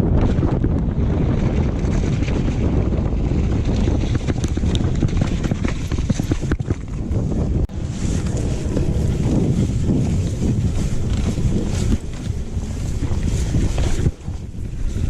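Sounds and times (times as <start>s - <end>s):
wind rushing over microphone: 0.0s - 15.0s
bike chain and frame clattering: 8.0s - 15.0s.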